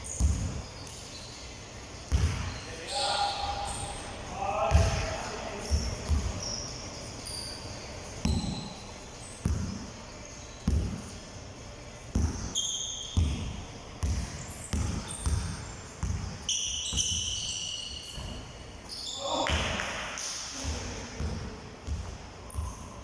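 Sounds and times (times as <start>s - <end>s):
sneaker squeaks: 0.0s - 23.0s
basketballs bouncing on hard floor: 0.1s - 0.6s, 2.1s - 2.6s, 4.7s - 6.6s, 8.2s - 8.8s, 9.4s - 9.9s, 10.6s - 11.1s, 12.1s - 18.4s, 20.6s - 22.9s.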